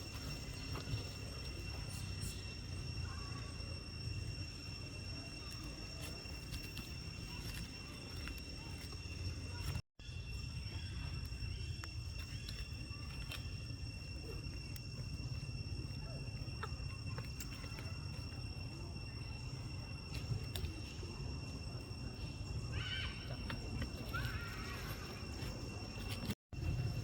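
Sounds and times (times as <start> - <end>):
monkey calls: 22.7 - 25.5.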